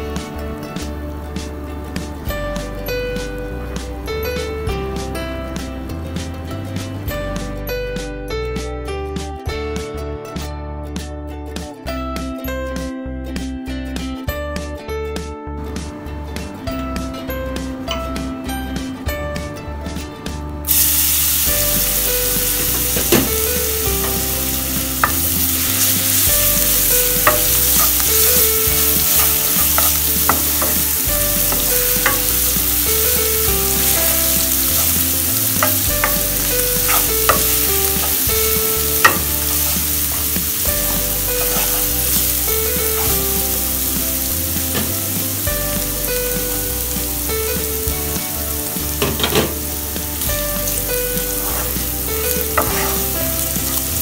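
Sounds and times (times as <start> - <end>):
garlic sizzling in oil: 20.6 - 54.0
wooden spatula scraping pan: 51.2 - 53.8.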